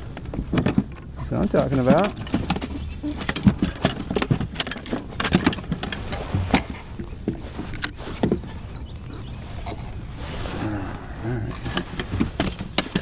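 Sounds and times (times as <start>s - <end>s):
taps knocks and rattles: 0.0s - 8.7s, 11.5s - 13.0s.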